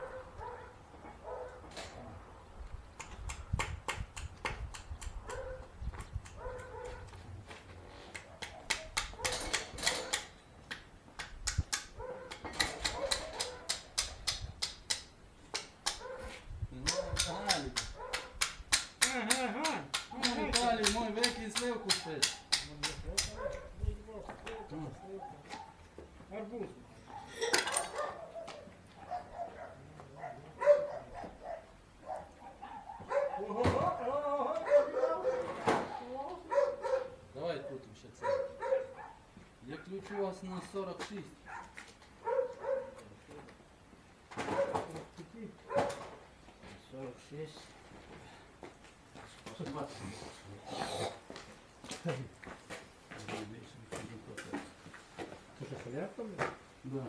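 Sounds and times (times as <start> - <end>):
dog barking and whining: 0.0 - 1.7, 5.3 - 5.7, 6.4 - 7.1, 8.2 - 9.6, 12.0 - 14.2, 16.0 - 17.2, 18.0 - 18.4, 23.4 - 23.8, 27.0 - 33.6, 34.6 - 39.3, 41.4 - 43.0, 44.5 - 44.9, 45.7 - 46.2
sharp clicks and taps: 3.0 - 7.2, 8.1 - 16.1, 16.8 - 23.6.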